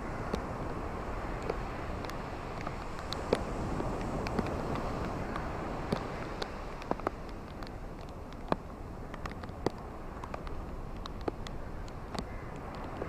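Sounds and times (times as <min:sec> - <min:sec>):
waves hissing on shore: 0:00.0 - 0:07.9
water ticks and splashes: 0:00.0 - 0:13.0.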